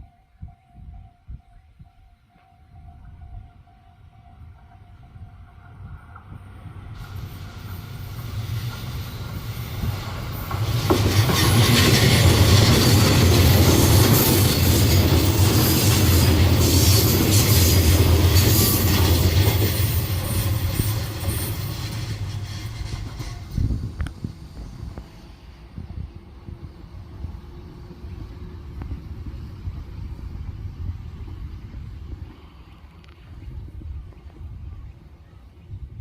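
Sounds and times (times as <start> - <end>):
electric train passing: 2.1 - 35.6
wheels clickety-clack on rail: 4.2 - 25.1, 27.7 - 34.7.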